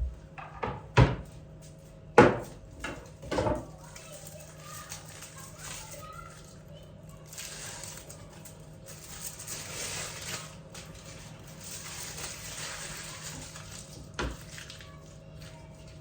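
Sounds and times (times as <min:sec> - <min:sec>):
steady low hum: 0:00.0 - 0:03.9
objects scraping and rustling: 0:02.5 - 0:16.0.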